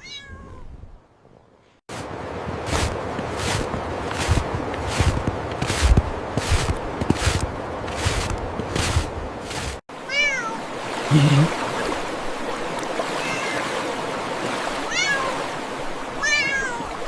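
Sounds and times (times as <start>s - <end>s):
kitten meowing: 0.0s - 0.6s, 13.2s - 13.6s, 16.2s - 16.9s
soft footsteps: 1.9s - 9.8s
running water: 1.9s - 17.0s
deep cat call: 11.1s - 11.5s.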